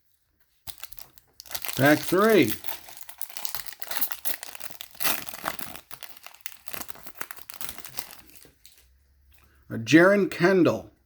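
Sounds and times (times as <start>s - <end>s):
foil wrapper crinkling and tearing: 0.6s - 8.9s.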